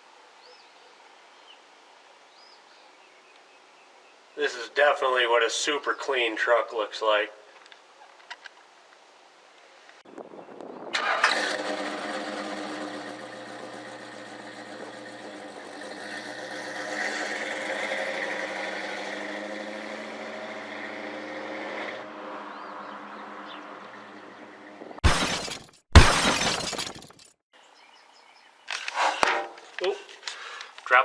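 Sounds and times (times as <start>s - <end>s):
truck engine cranking and running: 10.9s - 18.5s.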